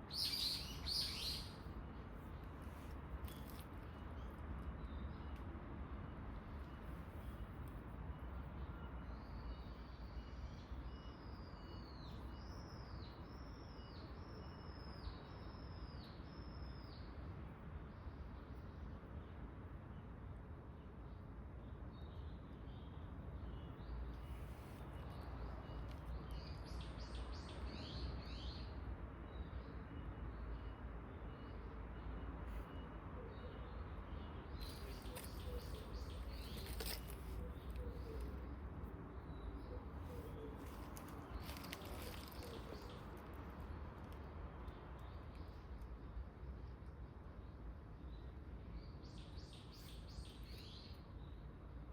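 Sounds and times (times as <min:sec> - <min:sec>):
low background noise: 0:00.0 - 0:51.9
small birds chirping: 0:34.2 - 0:38.6, 0:39.2 - 0:46.0
rustling and crackling: 0:34.6 - 0:38.3, 0:40.2 - 0:43.1.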